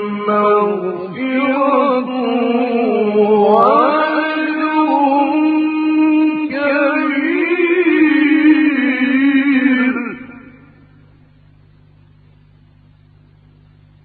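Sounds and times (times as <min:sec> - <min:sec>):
man reciting melodically: 0:00.0 - 0:10.7.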